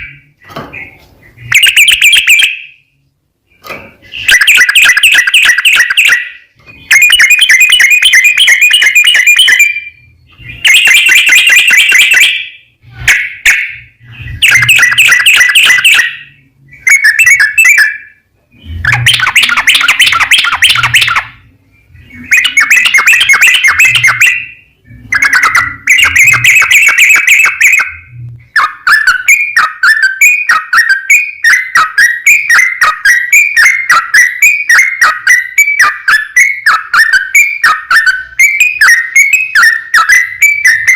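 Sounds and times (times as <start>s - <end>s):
bird singing rapid chattering phrases: 0.0s - 40.9s.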